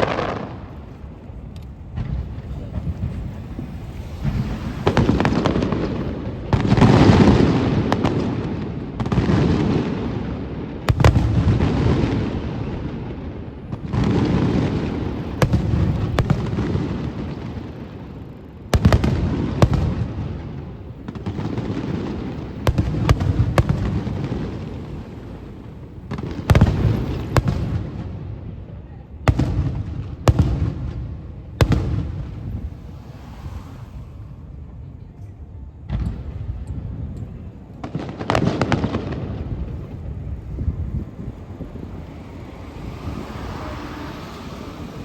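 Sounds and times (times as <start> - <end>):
firework shells booming: 0.0 - 18.1, 18.7 - 28.4, 29.3 - 34.8
sharp firework cracks: 0.0 - 28.2.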